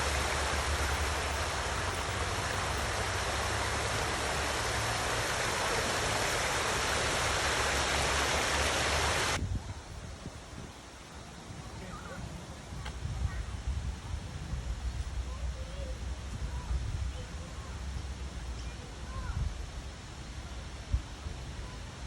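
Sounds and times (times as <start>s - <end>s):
water pouring down waterfall: 0.0s - 9.4s.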